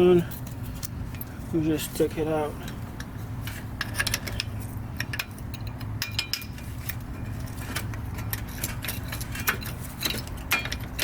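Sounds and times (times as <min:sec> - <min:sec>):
steady low hum: 0:00.0 - 0:11.0
metal brake parts clinking: 0:02.6 - 0:11.0.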